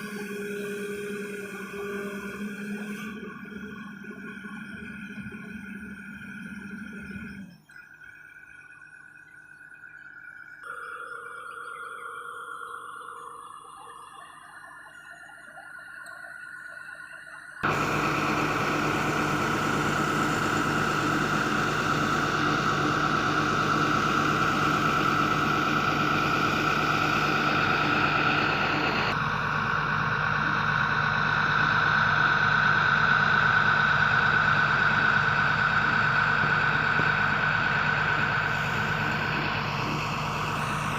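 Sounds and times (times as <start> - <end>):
excavator engine running: 0.0 - 7.6, 17.6 - 40.9
high whine: 0.0 - 40.9.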